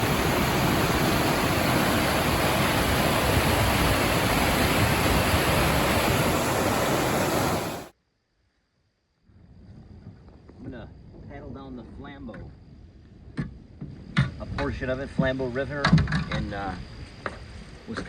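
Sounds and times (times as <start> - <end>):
river water rushing through rapids: 0.0 - 7.9.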